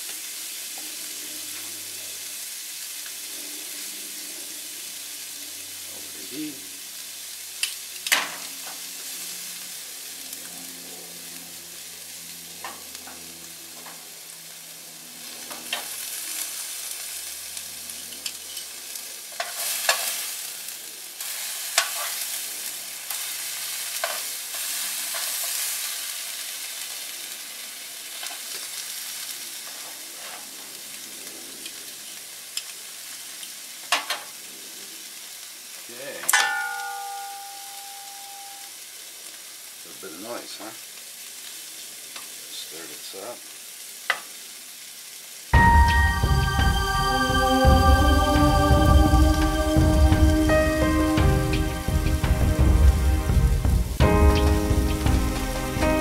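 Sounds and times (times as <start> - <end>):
fish and shrimp sizzling in oil: 0.0 - 47.0, 48.2 - 56.0
metal tongs clicking against pans: 18.0 - 18.8, 21.8 - 22.2.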